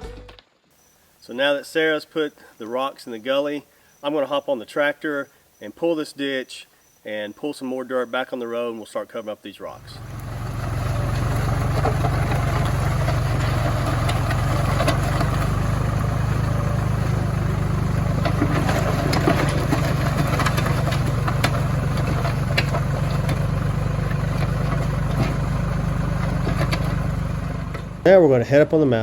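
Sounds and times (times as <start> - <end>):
tractor engine running: 9.7 - 29.0.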